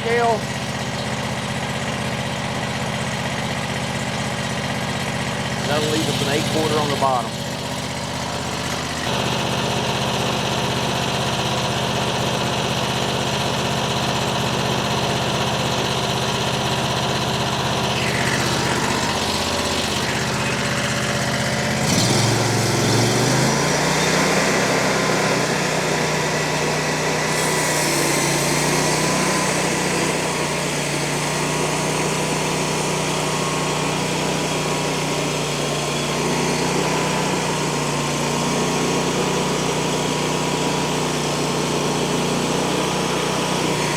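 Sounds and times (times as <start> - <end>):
small gasoline engine running: 0.0 - 43.9
saw blade cutting log: 5.5 - 7.4, 17.5 - 43.9.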